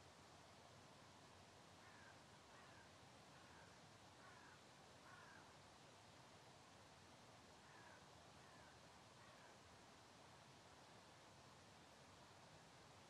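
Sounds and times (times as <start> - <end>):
faint hiss: 0.0 - 13.0
short bird calls: 1.8 - 5.5.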